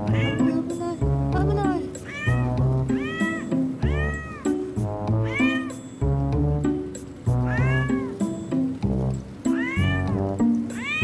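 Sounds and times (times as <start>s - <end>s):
cat meowing: 0.0s - 1.0s, 1.7s - 5.9s, 7.4s - 8.3s, 9.5s - 11.0s
background music: 0.0s - 11.0s.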